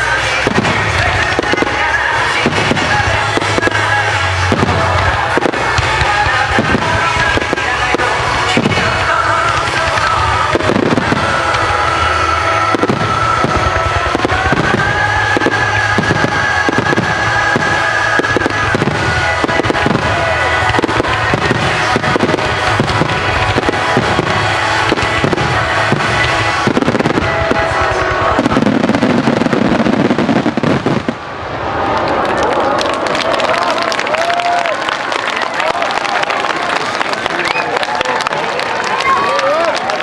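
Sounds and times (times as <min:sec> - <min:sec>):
music playing: 0:00.0 - 0:31.9
fireworks bursting and crackling: 0:00.0 - 0:40.0.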